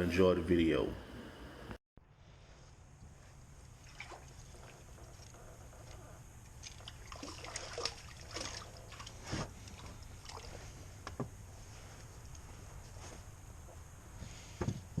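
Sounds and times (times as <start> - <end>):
low hum: 0.0 - 15.0
water splashing around a boat: 3.6 - 5.4, 6.4 - 11.0.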